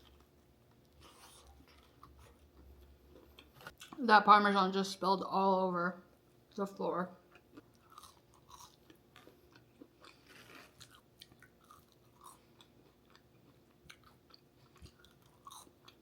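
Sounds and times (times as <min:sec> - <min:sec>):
person chewing food: 0:00.0 - 0:04.0, 0:07.3 - 0:16.0.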